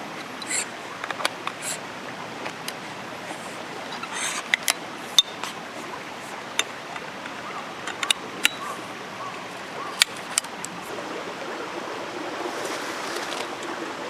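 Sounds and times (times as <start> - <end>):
rain hissing: 0.0 - 11.2.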